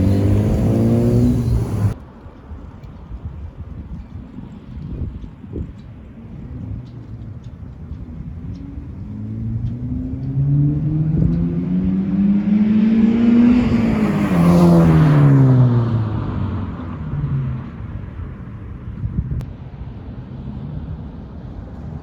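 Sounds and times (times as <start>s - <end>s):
car accelerating past: 0.0s - 2.0s, 9.0s - 17.9s.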